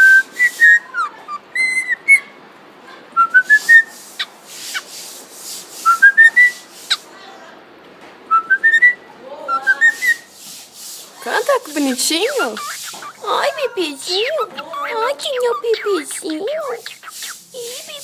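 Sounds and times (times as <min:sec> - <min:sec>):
cockatiel whistling: 0:00.0 - 0:02.3, 0:03.2 - 0:04.8, 0:05.8 - 0:07.0, 0:08.3 - 0:10.3, 0:12.3 - 0:13.2.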